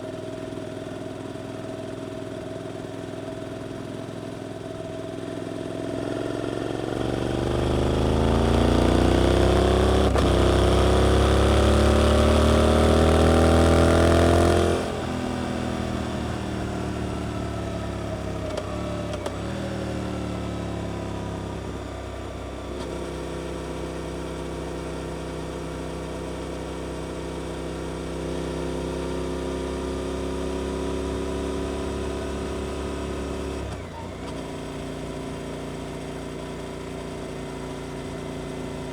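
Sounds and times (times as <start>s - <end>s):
motorcycle engine revving: 5.7s - 21.8s.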